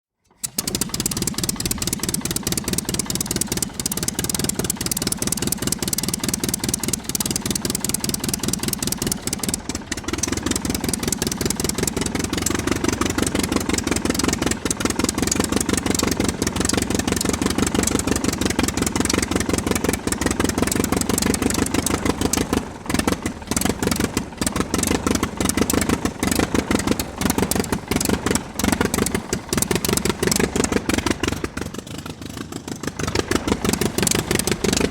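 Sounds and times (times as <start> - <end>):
engine running with rapid pulses: 0.2 - 34.9.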